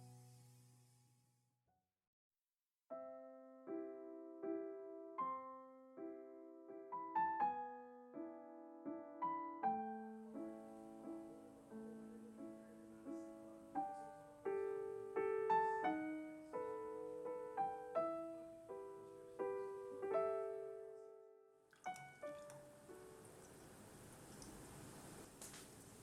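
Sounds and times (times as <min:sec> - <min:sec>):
gentle solo piano: 0:02.9 - 0:26.0.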